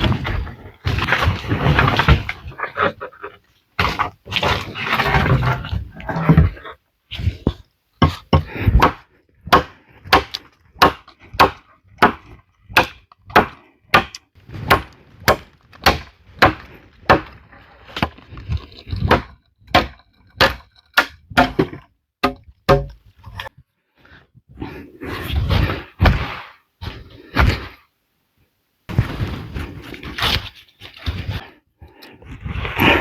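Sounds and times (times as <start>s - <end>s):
wood being chopped: 8.0s - 17.4s, 19.0s - 23.0s.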